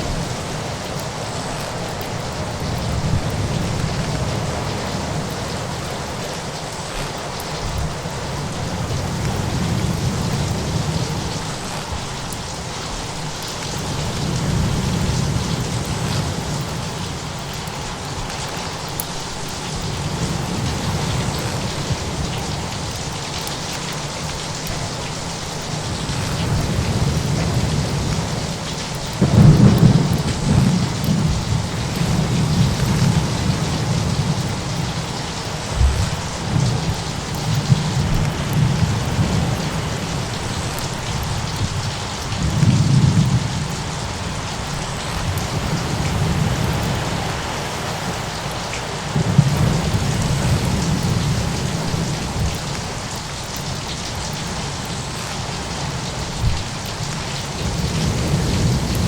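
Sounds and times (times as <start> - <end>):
heavy rain: 0.0 - 59.0
low rolling thunder: 25.8 - 48.2, 49.1 - 52.6, 57.6 - 59.0
sharp thunder cracks: 35.6 - 39.4.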